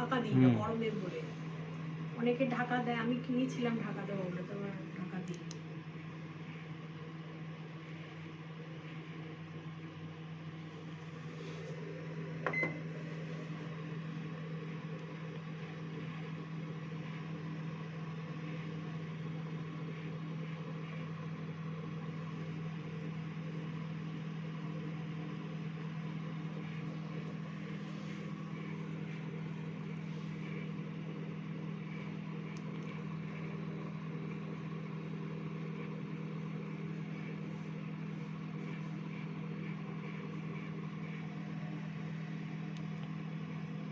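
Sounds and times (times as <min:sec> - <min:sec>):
microwave oven humming: 0:00.0 - 0:43.9
keypad beep: 0:12.5 - 0:12.8.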